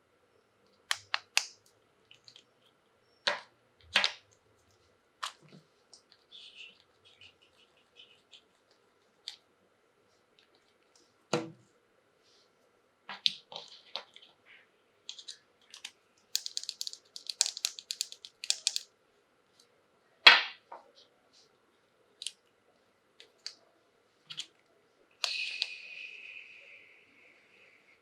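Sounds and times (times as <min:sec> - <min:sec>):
plastic toys and packaging handled: 0:15.1 - 0:18.9.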